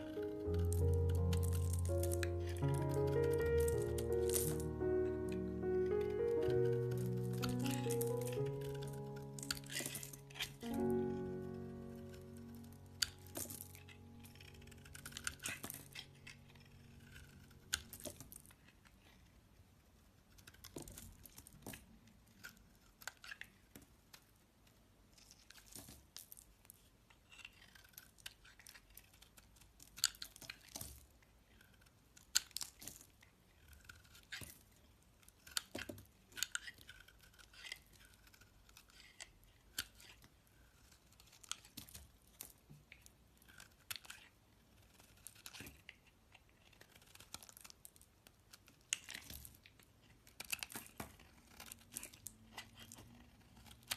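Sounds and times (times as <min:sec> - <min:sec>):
knife scraping through soap: 0:27.2 - 0:29.3, 0:33.6 - 0:42.0, 0:43.4 - 0:47.7.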